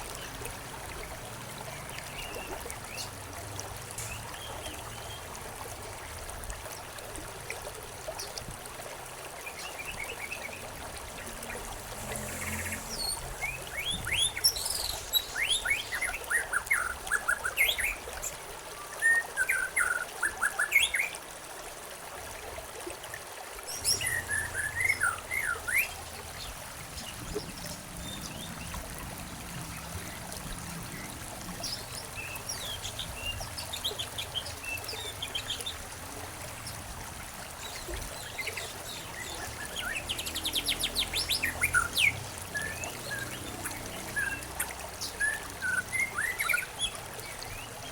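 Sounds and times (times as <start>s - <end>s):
water trickling: 0.0s - 47.9s
birds chirping: 9.5s - 18.0s, 23.7s - 35.8s.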